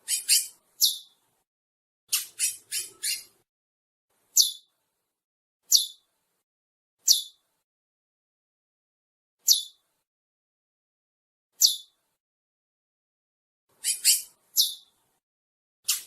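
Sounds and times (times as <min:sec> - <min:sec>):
finch calling in high notes: 0:02.1 - 0:03.4, 0:13.8 - 0:14.8.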